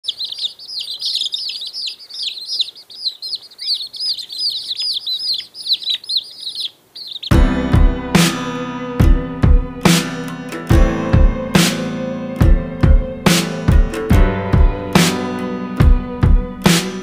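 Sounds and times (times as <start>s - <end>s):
rapid high bird chirps: 0.0s - 7.4s
music: 7.3s - 17.0s.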